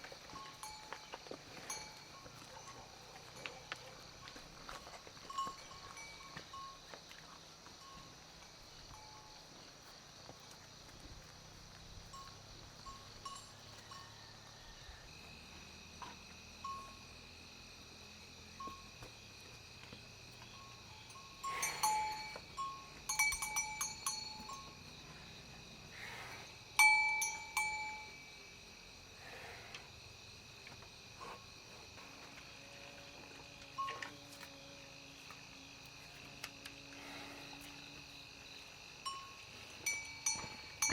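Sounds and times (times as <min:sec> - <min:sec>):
insects droning: 0:00.0 - 0:40.9
livestock bell clanking: 0:00.3 - 0:03.8, 0:05.2 - 0:06.8, 0:12.1 - 0:14.3, 0:16.6 - 0:17.0, 0:20.5 - 0:24.9, 0:26.8 - 0:28.4, 0:39.0 - 0:40.9.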